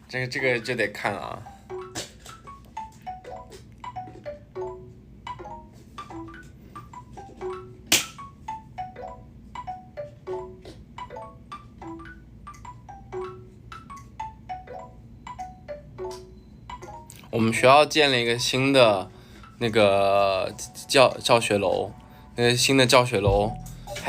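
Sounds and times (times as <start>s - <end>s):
soft chiming notes: 23.3s - 24.0s.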